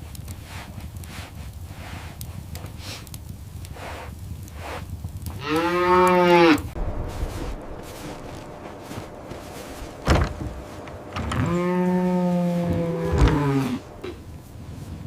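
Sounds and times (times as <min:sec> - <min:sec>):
cow mooing: 0:05.4 - 0:06.7, 0:11.3 - 0:14.1.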